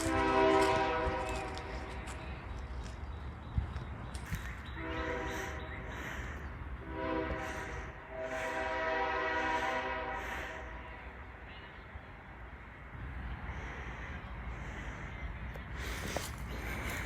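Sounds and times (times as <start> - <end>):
locomotive air horn blasts: 0.0 - 2.0, 4.8 - 5.8, 6.8 - 10.9.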